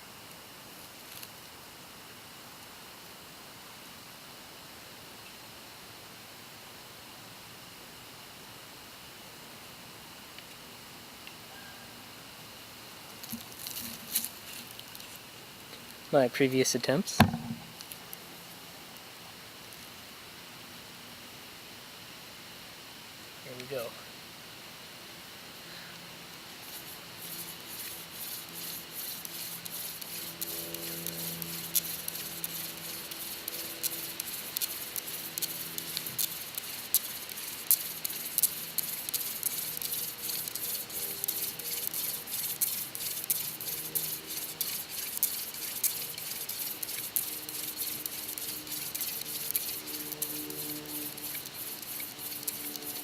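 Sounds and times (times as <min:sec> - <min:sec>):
wood grinding ticks and squeaks: 0:26.7 - 0:53.0
wood spindle rasping in socket: 0:27.3 - 0:53.0.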